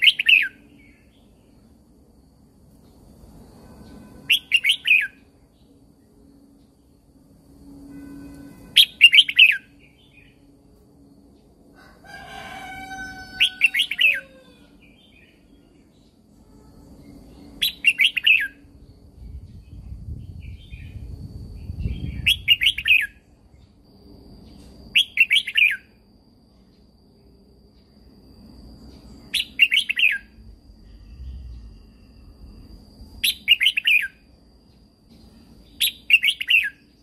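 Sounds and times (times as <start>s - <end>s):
fainter lower bird call: 0.0s - 1.1s, 3.7s - 5.3s, 7.8s - 10.4s, 11.8s - 15.9s
bird singing warbled phrases: 0.0s - 1.4s, 4.3s - 5.7s, 8.8s - 10.4s, 17.1s - 21.1s, 21.7s - 23.2s, 29.2s - 30.4s, 33.2s - 34.2s, 35.7s - 36.9s.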